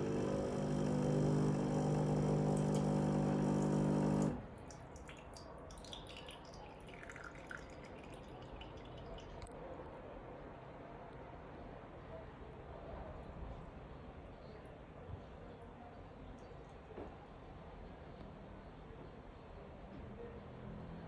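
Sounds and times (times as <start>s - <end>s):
coffee machine humming: 0.0s - 4.7s
liquid dripping into cup: 0.0s - 9.6s.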